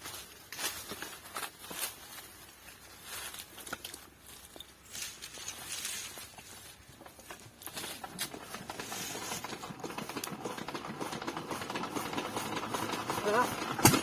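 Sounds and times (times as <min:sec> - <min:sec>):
diesel engine hand cranking clicks: 0:07.1 - 0:14.0.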